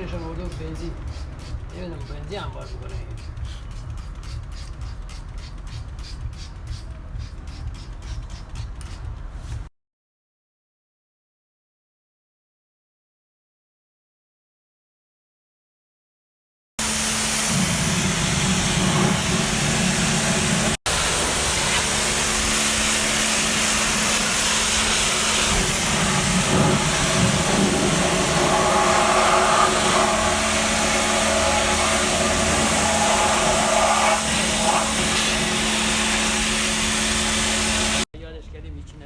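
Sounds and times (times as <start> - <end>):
cleaning machine humming and hissing: 16.8 - 38.1.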